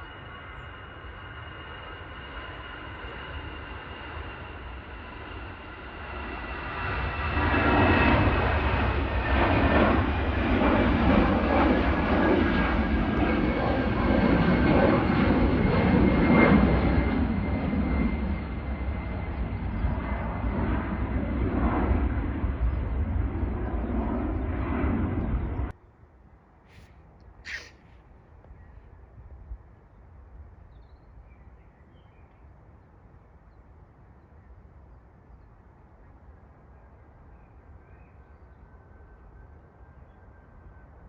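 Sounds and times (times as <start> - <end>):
jet engines roaring with whine: 0.0 - 25.8, 26.7 - 41.0
bird chirp: 19.2 - 20.6, 26.7 - 28.9, 30.7 - 32.5.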